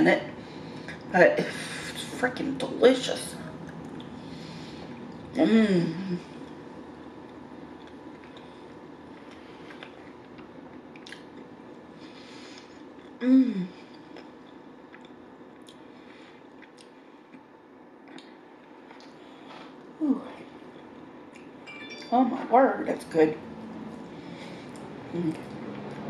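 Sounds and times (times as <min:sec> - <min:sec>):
person chewing: 0:07.2 - 0:11.6, 0:13.9 - 0:19.9.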